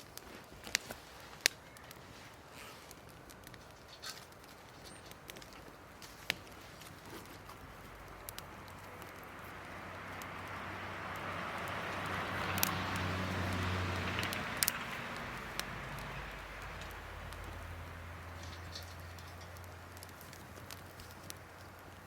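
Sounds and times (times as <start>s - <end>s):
vehicle passing by: 7.9s - 20.8s.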